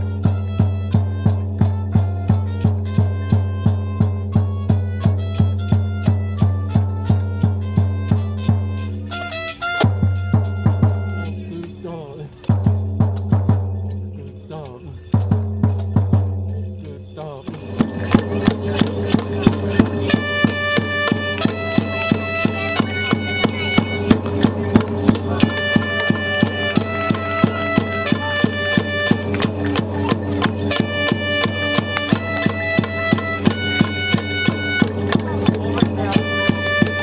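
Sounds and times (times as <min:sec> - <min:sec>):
programmed drum beat: 0:17.5 - 0:37.0.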